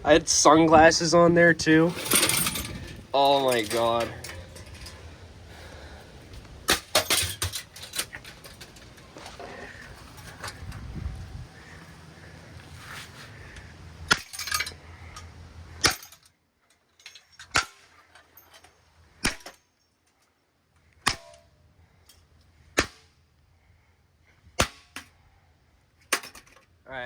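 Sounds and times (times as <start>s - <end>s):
low steady hum: 0.0s - 16.3s.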